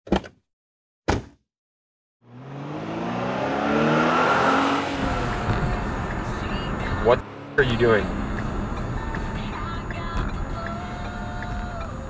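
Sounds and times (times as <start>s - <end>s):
car engine revving up: 2.2s - 10.6s.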